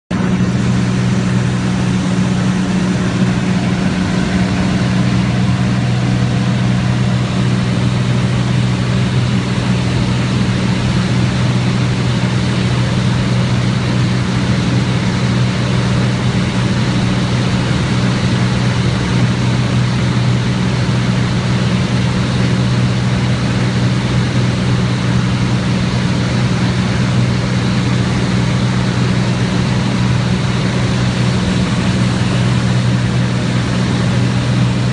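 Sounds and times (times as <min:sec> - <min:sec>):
aircraft engine and propeller drone: 0:00.1 - 0:34.9.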